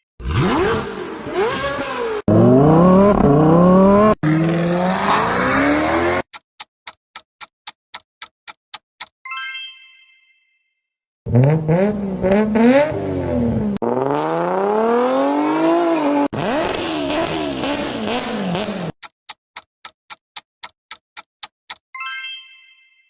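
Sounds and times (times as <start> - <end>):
car engines revving: 0.2 - 6.3, 11.3 - 18.9
bell-like chime: 9.3 - 10.9, 22.0 - 23.0.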